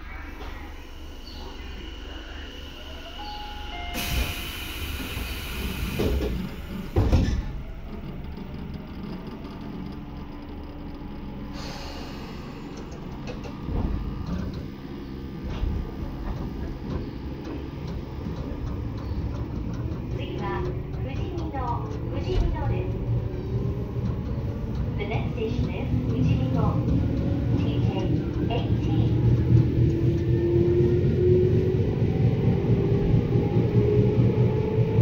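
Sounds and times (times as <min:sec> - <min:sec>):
train low rumble: 0:00.0 - 0:35.0.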